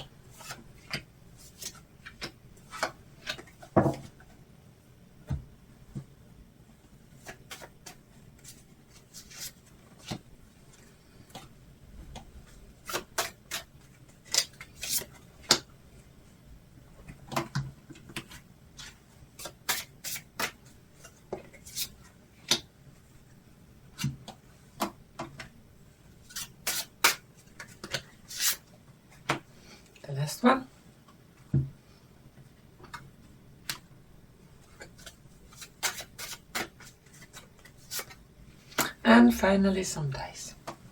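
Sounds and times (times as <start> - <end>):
cards being shuffled: 7.2 - 11.5, 12.8 - 15.6, 17.4 - 22.6, 26.3 - 28.6, 34.6 - 39.0.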